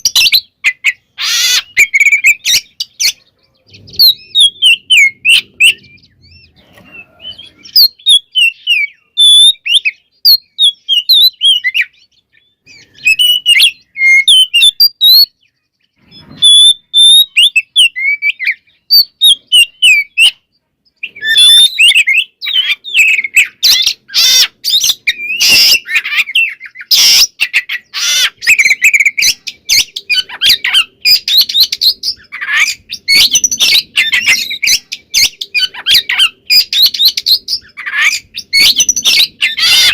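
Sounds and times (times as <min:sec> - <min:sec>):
bird singing with rasping notes: 0:00.0 - 0:39.9.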